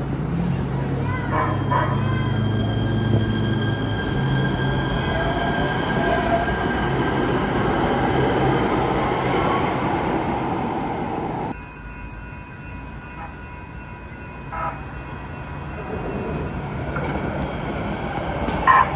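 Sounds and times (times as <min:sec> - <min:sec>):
train rumbling on rails: 0:00.0 - 0:18.9
wheels squealing: 0:00.1 - 0:11.5.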